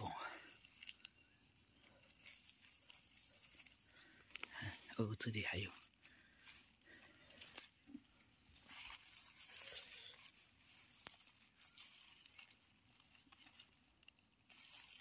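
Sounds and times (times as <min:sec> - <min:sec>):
rustling dry leaves: 0:00.0 - 0:15.0
small twig snaps: 0:00.6 - 0:01.2, 0:02.0 - 0:04.6, 0:08.7 - 0:15.0.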